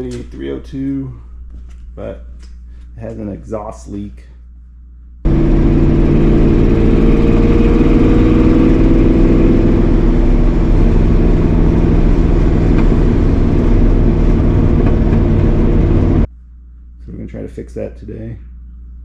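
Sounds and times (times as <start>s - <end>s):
vee eight engine running: 5.3s - 16.3s.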